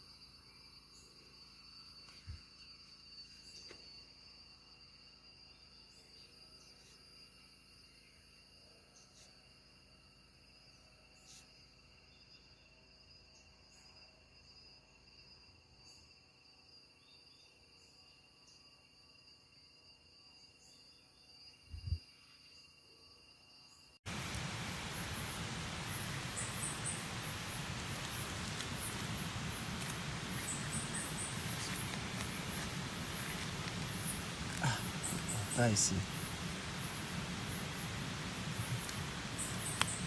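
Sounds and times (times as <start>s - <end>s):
crickets trilling: 0.0s - 40.0s
loud even hiss: 24.1s - 40.0s.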